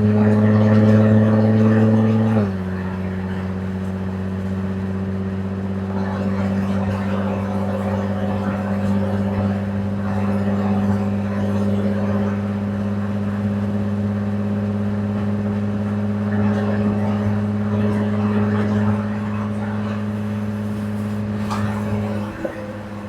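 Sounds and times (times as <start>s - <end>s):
car engine running steadily: 0.0s - 23.0s.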